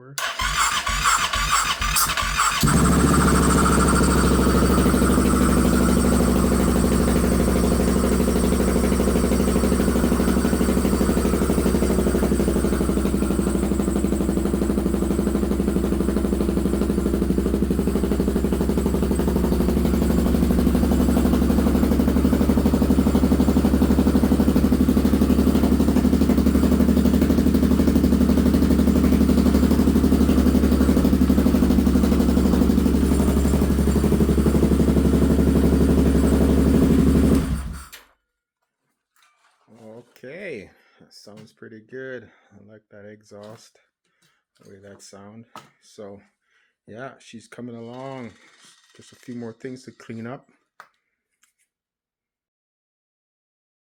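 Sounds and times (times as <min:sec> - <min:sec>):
single-cylinder engine idling: 0:00.2 - 0:37.9.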